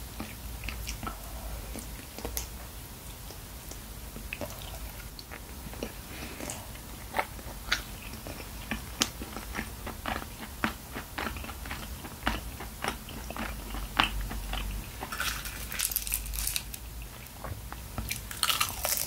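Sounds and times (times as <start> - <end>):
wet chewing and mouth clicks: 3.2 - 17.4.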